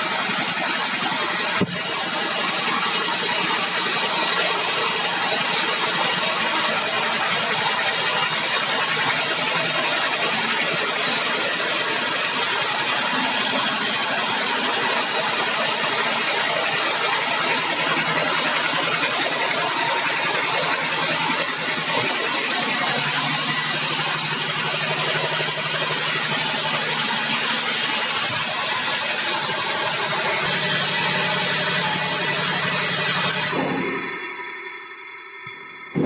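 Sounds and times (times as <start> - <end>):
band saw and engine running: 0.0 - 36.0.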